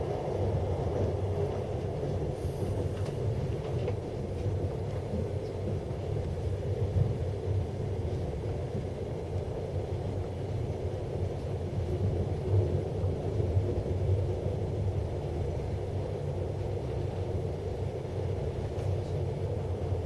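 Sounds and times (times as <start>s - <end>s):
train running rumble: 0.0s - 20.0s.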